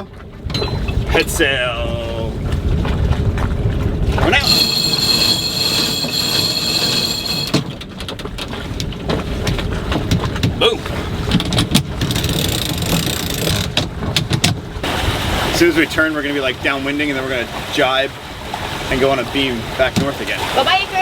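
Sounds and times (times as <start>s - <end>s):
mechanical whine: 4.3s - 7.8s.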